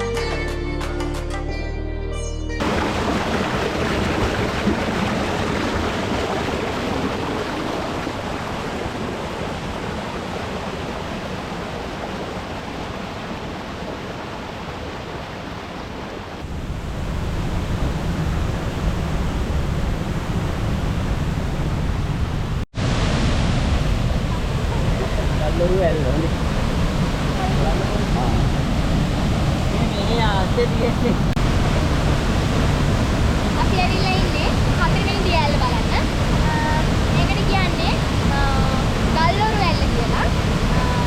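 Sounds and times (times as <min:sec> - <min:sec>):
waterfall rushing: 0:02.6 - 0:41.0.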